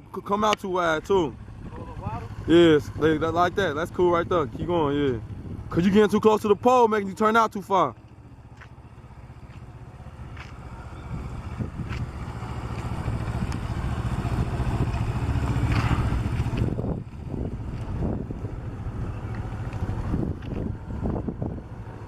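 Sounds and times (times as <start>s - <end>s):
motorcycle engine running: 0.0s - 22.0s
wind buffeting microphone: 4.0s - 5.9s, 11.0s - 22.0s.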